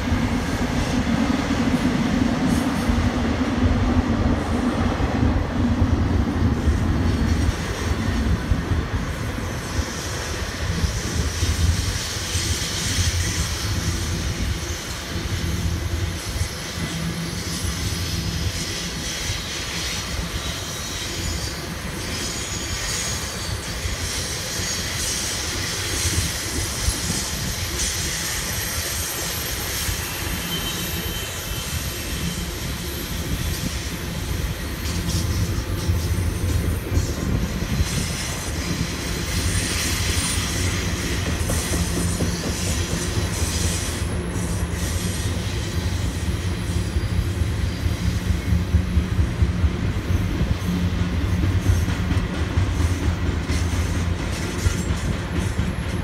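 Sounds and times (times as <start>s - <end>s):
train wheels rumbling on rail: 0.0s - 56.0s
hiss: 6.7s - 49.5s.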